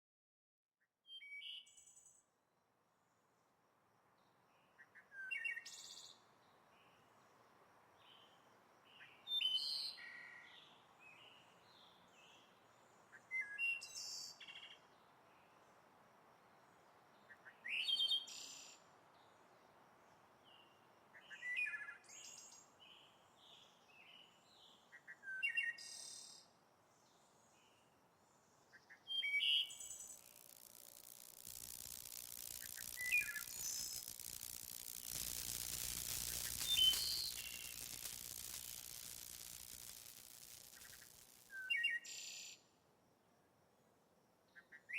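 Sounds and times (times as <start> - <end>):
faint background hiss: 1.1 - 44.9
quiet bird chirps: 4.2 - 7.4, 16.4 - 42.7
songbird singing: 27.0 - 42.5.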